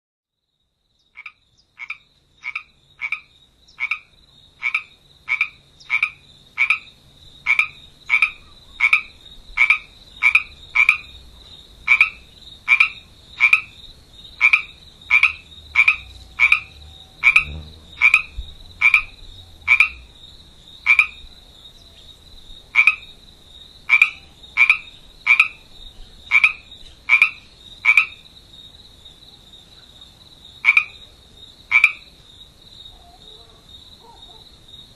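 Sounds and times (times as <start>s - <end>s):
frog croaking: 1.0s - 21.4s, 22.7s - 23.2s, 23.8s - 28.3s, 30.6s - 32.2s.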